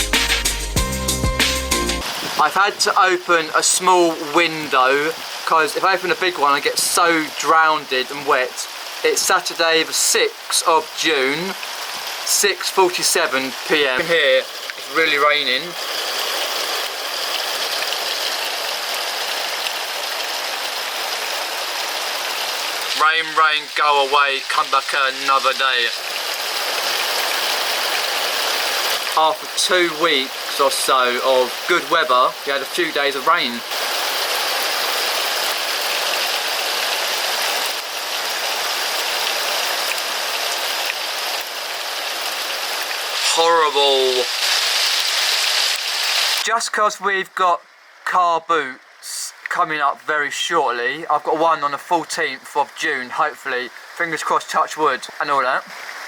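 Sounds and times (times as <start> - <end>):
heavy rain hiss: 0.0 - 56.0
raindrop ticks: 2.5 - 18.8, 45.7 - 56.0.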